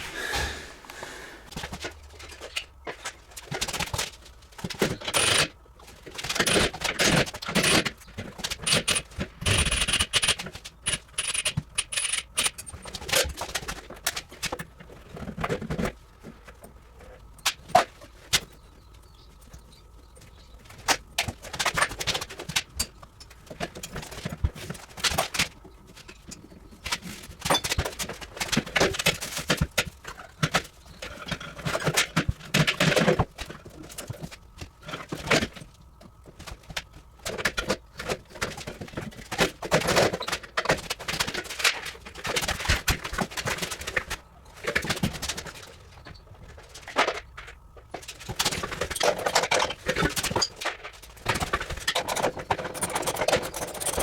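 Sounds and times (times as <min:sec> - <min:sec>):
metal tools clanking and rattling: 0:51.6 - 0:54.0.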